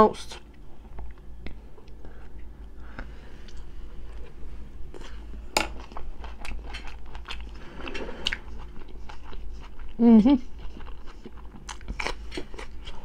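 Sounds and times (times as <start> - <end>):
chewing with mouth clicks: 5.8 - 13.0.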